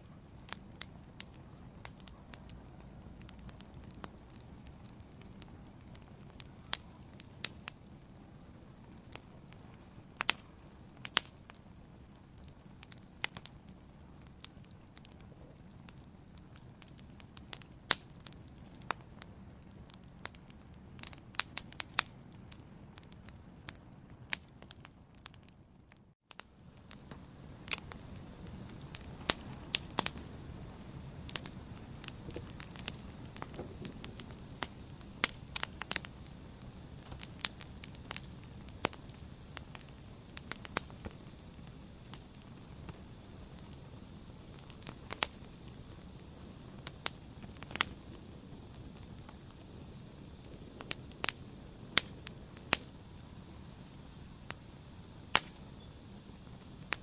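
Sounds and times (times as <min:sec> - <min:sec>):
low rumble of flames: 0:00.0 - 0:57.0
soft steady hiss: 0:00.0 - 0:57.0
wood fire crackling and popping: 0:00.0 - 0:57.0.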